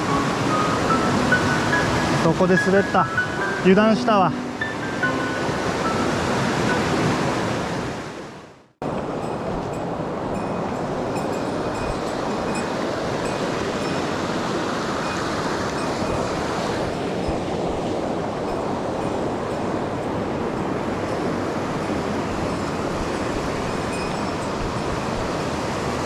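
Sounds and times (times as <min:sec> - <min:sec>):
water rushing over rocks: 0:00.0 - 0:08.1.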